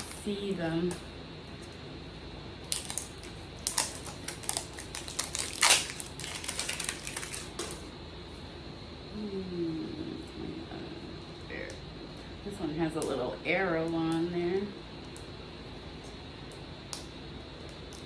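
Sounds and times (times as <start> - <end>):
fingernails scratching plastic wrapping: 2.7 - 7.8.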